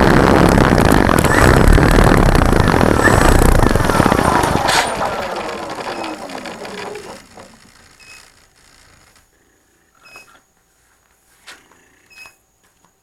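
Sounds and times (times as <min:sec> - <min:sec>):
piston aircraft engine winding down: 0:00.0 - 0:08.8.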